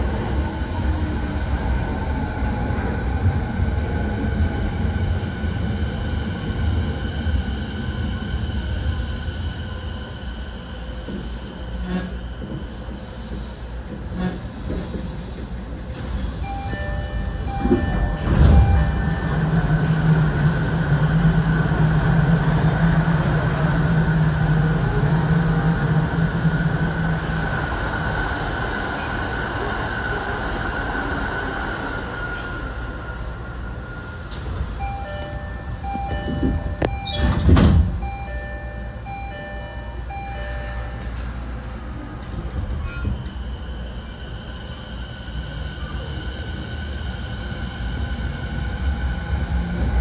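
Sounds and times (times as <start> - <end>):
train equipment humming: 0.0 - 50.0
train doors shutting thud: 13.3 - 19.7, 36.0 - 38.0
electronic door chime: 34.8 - 41.0.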